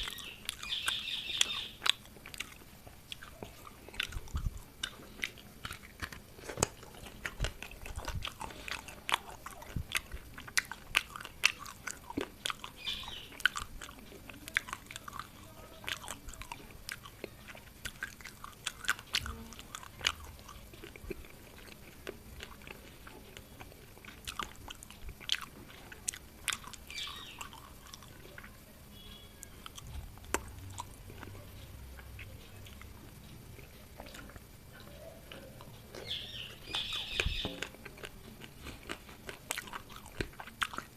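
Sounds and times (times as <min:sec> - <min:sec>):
chewing and crunching: 0:00.0 - 0:40.9.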